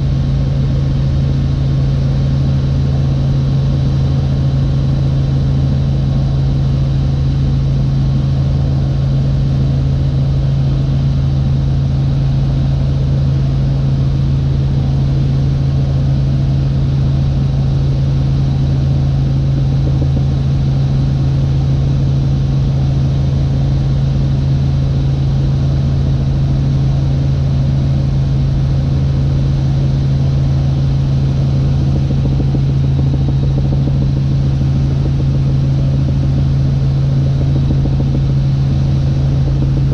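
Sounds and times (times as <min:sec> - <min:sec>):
helicopter drone: 0:00.0 - 0:39.9.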